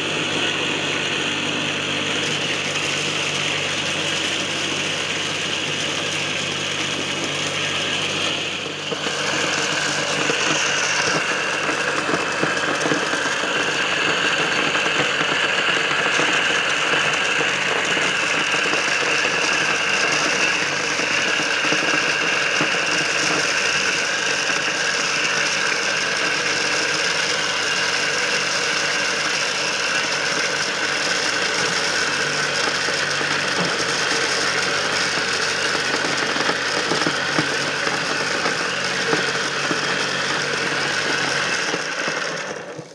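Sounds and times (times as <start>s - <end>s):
electric motor running: 0.0s - 42.9s.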